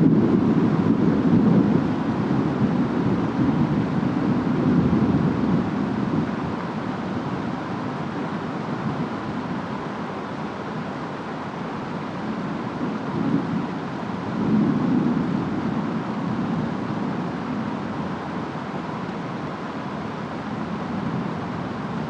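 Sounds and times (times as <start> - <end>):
steady rain: 0.0 - 22.0
wind: 0.0 - 22.0
distant thunder rumbling: 12.8 - 18.5.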